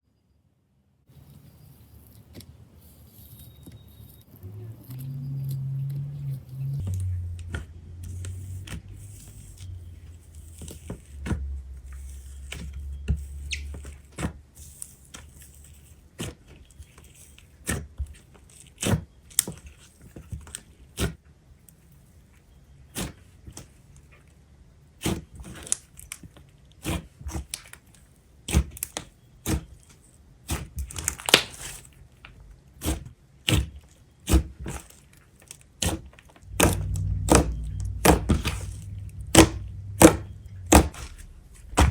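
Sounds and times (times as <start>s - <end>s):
low hum: 4.3s - 14.0s, 36.4s - 41.9s.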